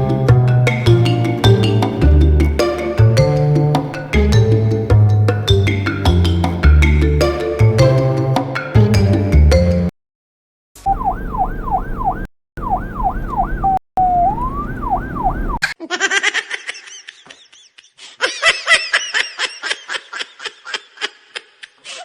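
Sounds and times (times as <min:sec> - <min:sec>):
police siren sound effect: 0:10.8 - 0:15.6.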